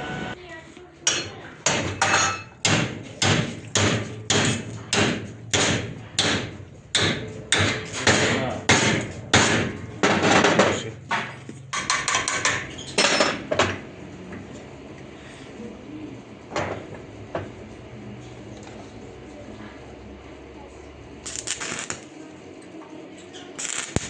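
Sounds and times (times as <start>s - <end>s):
hammer striking metal: 1.1s - 10.6s.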